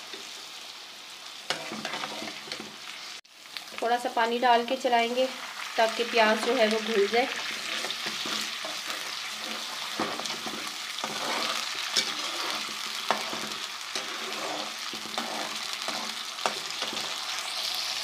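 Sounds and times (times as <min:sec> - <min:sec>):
onion sizzling in a pan: 0:00.0 - 0:18.0.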